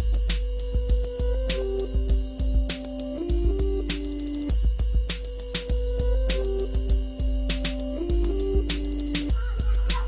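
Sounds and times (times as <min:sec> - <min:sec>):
regular drum hits: 0:00.0 - 0:10.0
held synth notes: 0:01.1 - 0:04.6, 0:05.6 - 0:10.0.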